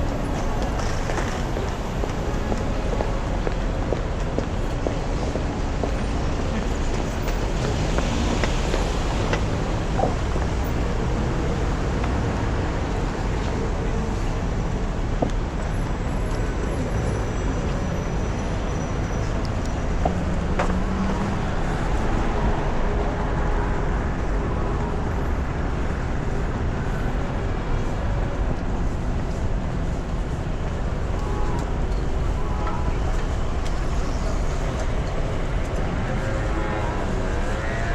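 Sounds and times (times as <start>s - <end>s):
city road traffic: 0.0s - 37.9s.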